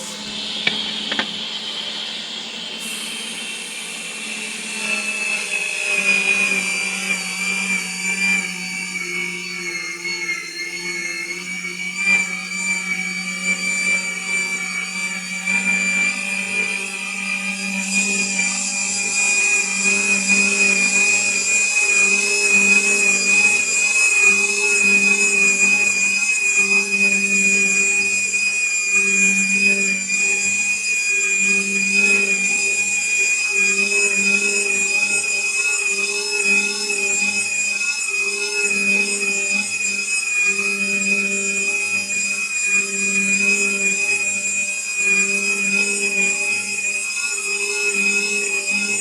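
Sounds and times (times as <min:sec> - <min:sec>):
pipe threading machine running: 0:00.0 - 0:08.2.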